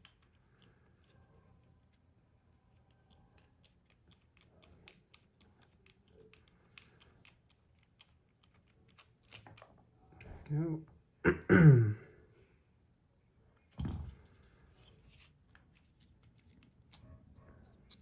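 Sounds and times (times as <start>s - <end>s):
small tools clicking and tapping: 3.1s - 9.8s.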